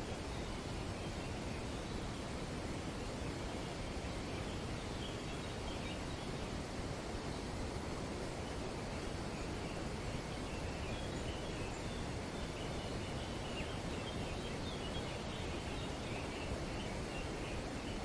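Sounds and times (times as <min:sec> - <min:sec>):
wind rustling trees: 0:00.0 - 0:18.0
faint high bird chatter: 0:08.4 - 0:18.0.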